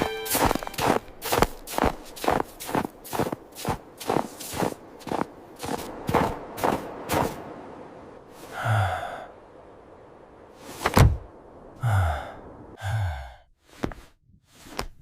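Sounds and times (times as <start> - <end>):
low voice groaning: 11.8 - 13.4.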